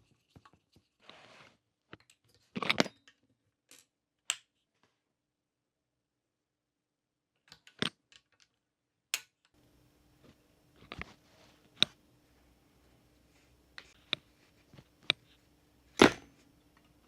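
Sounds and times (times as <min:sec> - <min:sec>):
clicks of small plastic parts: 0:07.4 - 0:09.5
faint steady hum: 0:09.6 - 0:17.0.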